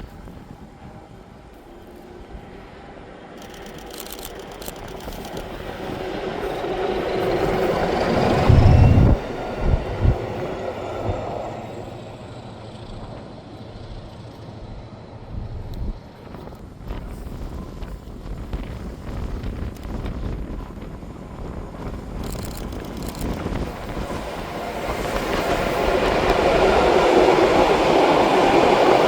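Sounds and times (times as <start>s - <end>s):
train passing at speed: 0.0s - 29.0s
train whine: 0.0s - 29.0s
wind blast on microphone: 5.4s - 11.9s, 15.2s - 29.0s.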